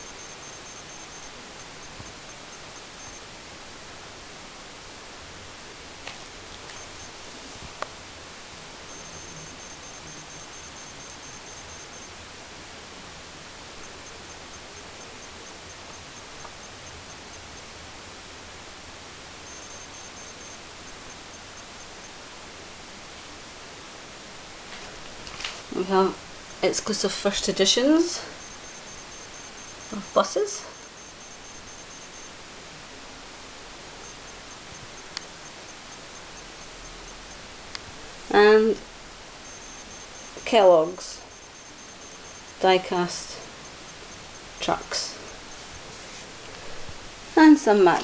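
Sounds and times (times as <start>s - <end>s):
faint high ticking: 0.0s - 3.3s, 6.0s - 8.0s, 8.7s - 12.5s, 13.2s - 18.3s, 19.1s - 22.3s, 25.7s - 32.7s, 33.4s - 47.0s
faint high-pitched beeping: 0.0s - 24.2s, 25.7s - 48.0s.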